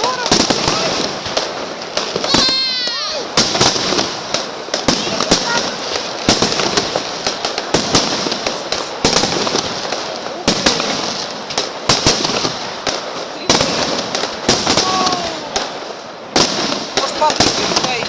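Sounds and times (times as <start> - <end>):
fireworks bangs: 0.0 - 18.0
fireworks crackling: 0.0 - 18.0.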